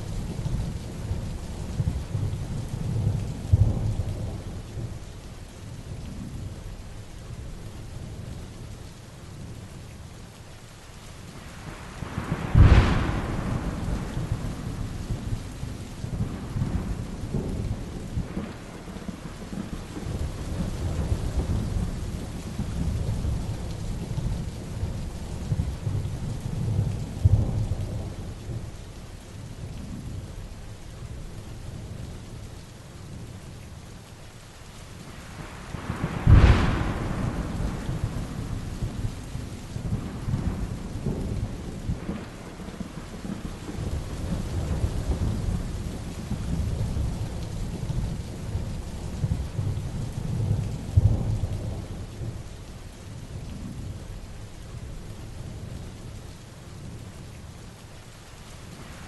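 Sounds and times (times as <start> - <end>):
low thunder rumbling: 0.0 - 5.1, 11.5 - 32.2, 35.1 - 55.9
heavy rain falling: 0.0 - 59.0
sharp thunderclap: 12.0 - 23.5, 35.7 - 48.2.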